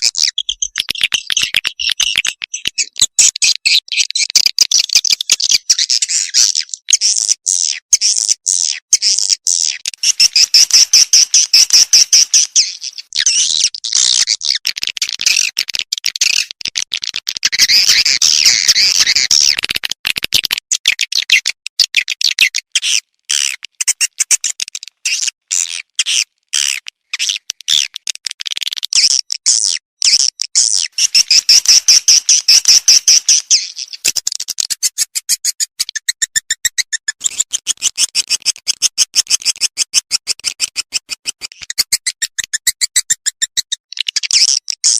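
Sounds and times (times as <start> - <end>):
swiftlet chirps and twitters: 0.0 - 14.5, 30.1 - 38.2.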